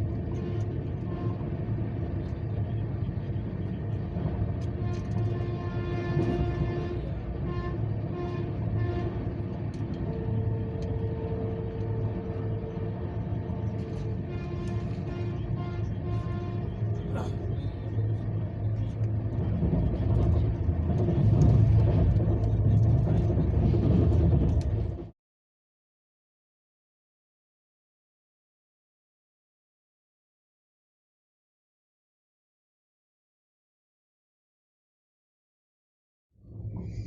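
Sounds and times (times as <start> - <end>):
vehicle low rumble: 0.0 - 25.1, 36.4 - 37.0.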